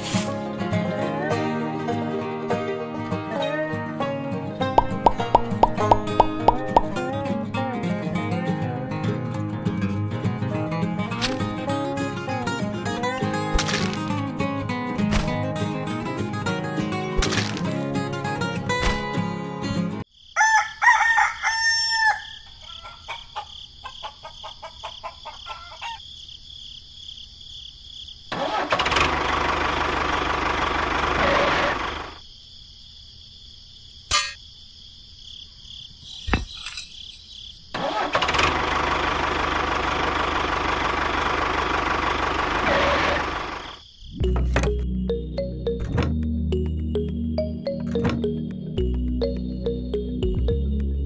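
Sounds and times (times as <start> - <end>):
rooster crowing: 20.3 - 26.0
chickens clucking: 22.5 - 26.0
engine running: 28.5 - 32.2, 37.8 - 51.0.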